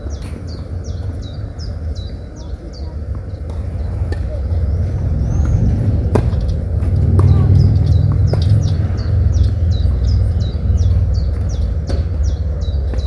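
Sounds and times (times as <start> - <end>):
low rumble: 0.0 - 13.0
small bird chirping: 7.3 - 13.0.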